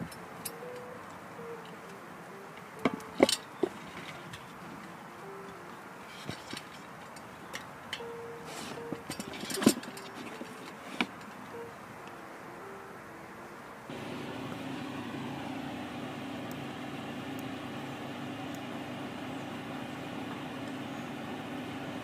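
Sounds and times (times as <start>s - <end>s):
handling clicks and knocks: 0.0s - 11.6s
mechanical hum with hiss: 13.8s - 22.0s.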